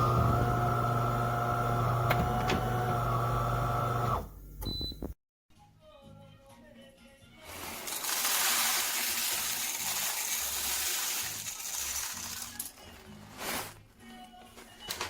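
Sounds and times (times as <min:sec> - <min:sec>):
background music: 0:05.5 - 0:15.0
coffee grinder grinding beans: 0:07.5 - 0:12.7.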